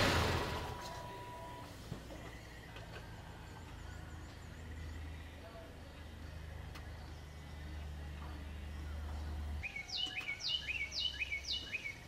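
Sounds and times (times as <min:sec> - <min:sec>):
songbird whistling: 0:09.6 - 0:12.0.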